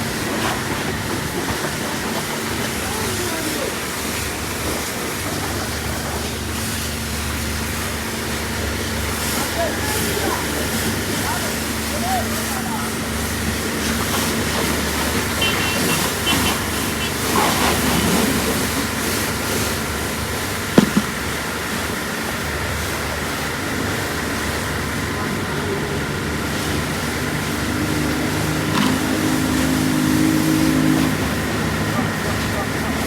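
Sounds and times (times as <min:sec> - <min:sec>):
constant rushing noise: 0:00.0 - 0:33.0
sharp knock: 0:20.8 - 0:21.2.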